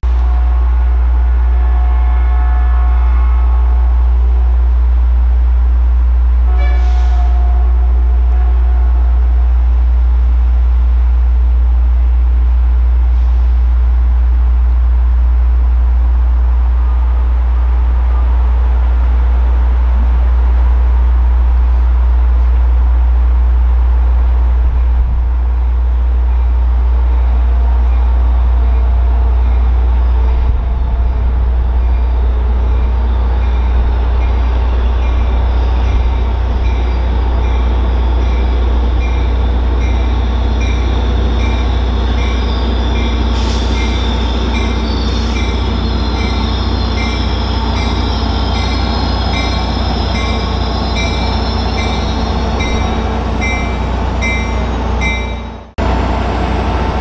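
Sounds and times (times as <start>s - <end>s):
train rumbling: 0.0s - 57.0s.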